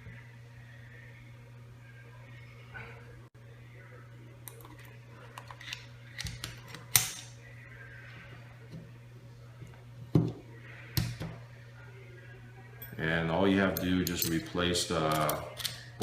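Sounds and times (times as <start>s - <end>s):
steady low hum: 0.0s - 16.0s
metal tool parts clicking: 13.8s - 15.8s.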